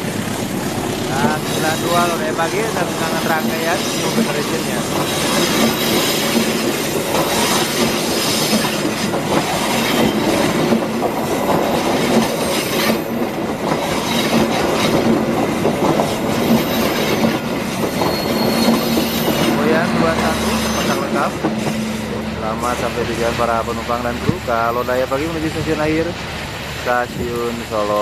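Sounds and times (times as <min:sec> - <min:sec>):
train wheels clattering: 0:00.0 - 0:28.0
wheel squeal: 0:16.4 - 0:22.1.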